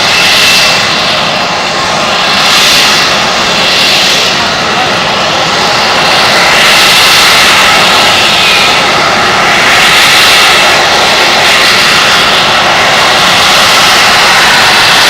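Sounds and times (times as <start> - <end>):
jet engine roaring: 0.0 - 15.0.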